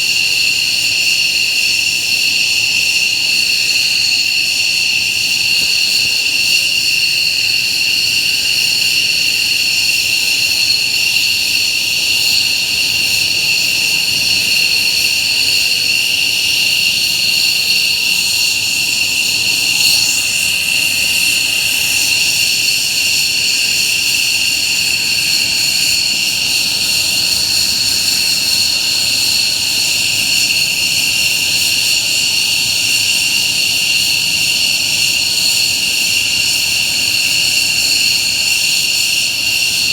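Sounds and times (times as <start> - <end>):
jet engines whining: 12.6 - 28.8.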